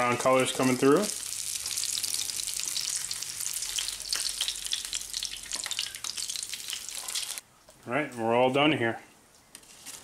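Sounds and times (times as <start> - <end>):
fish sizzling in hot oil: 0.7 - 7.4.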